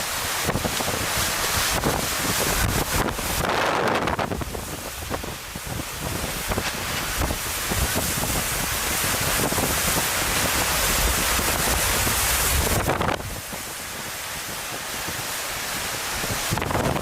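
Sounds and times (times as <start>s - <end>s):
gusts buffeting microphone: 0.0s - 17.0s
hurricane wind: 0.0s - 17.0s
rain rushing: 0.0s - 17.0s
small knocks and crackles: 6.5s - 7.4s.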